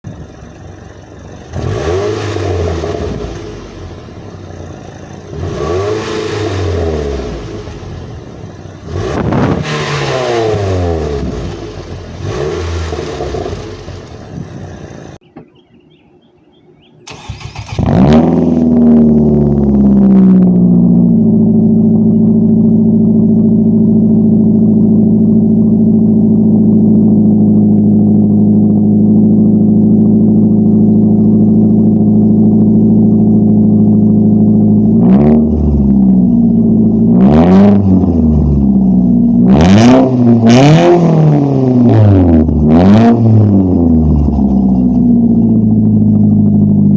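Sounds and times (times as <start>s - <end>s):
car engine idling: 0.0s - 6.0s, 6.6s - 9.5s, 10.5s - 46.9s
car engine revving: 0.1s - 15.2s, 17.0s - 46.9s
car engine cranking and starting: 0.1s - 15.5s, 16.9s - 46.9s.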